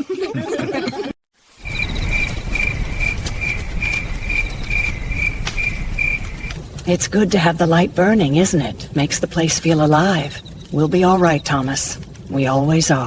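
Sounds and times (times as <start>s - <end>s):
cricket chirping: 1.5s - 6.7s, 10.0s - 11.8s
low outdoor rumble: 1.6s - 13.0s.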